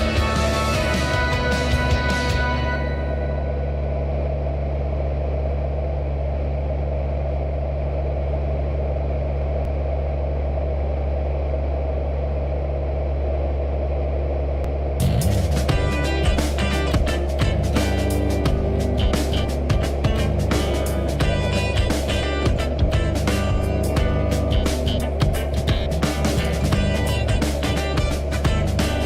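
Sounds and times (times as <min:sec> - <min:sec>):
background music: 0:00.0 - 0:03.8, 0:15.0 - 0:29.0
light aircraft engine droning: 0:00.0 - 0:29.0.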